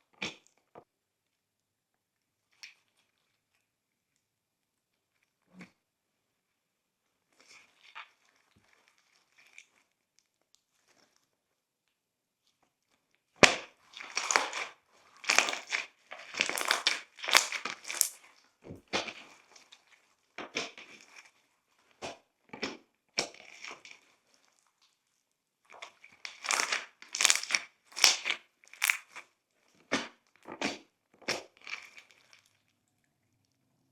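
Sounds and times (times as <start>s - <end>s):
slime squishing and crackling: 13.4s - 19.9s, 25.7s - 32.7s.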